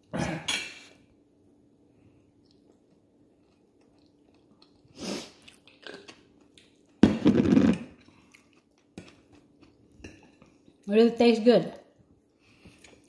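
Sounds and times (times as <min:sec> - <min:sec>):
faint steady hum: 0:00.0 - 0:13.0
person chewing food: 0:02.2 - 0:07.0, 0:07.9 - 0:10.9, 0:12.2 - 0:13.0.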